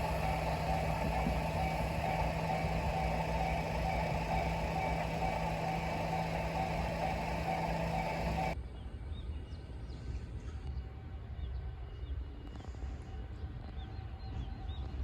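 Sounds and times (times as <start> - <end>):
train engine humming: 0.0 - 8.6.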